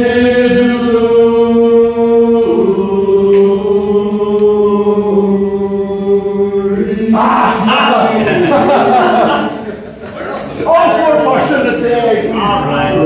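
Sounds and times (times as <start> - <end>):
male chorus singing a cappella: 0.0 - 9.7.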